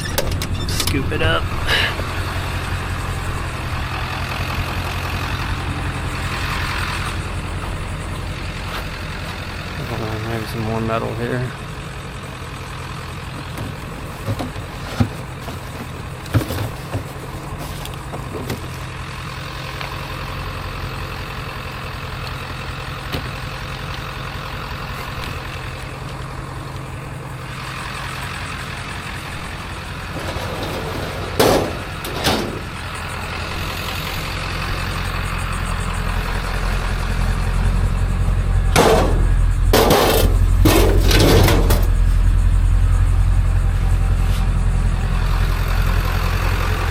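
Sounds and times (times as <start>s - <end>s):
vehicle engine running: 0.0s - 46.9s
short knocks and clanks: 13.4s - 18.8s, 30.0s - 32.8s, 38.7s - 42.2s.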